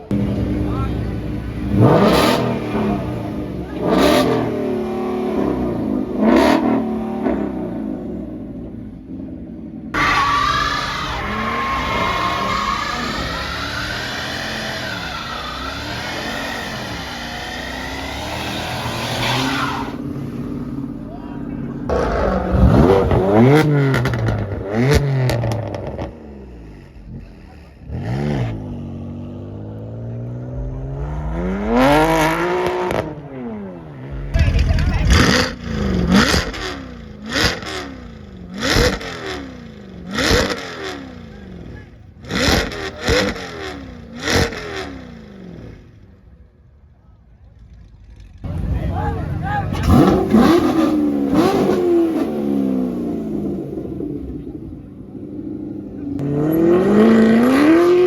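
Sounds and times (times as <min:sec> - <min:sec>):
car engines revving hard: 0:00.0 - 0:46.5, 0:47.5 - 0:58.0
steady tones: 0:29.5 - 0:38.6
exhaust crackles and pops: 0:34.1 - 0:37.8.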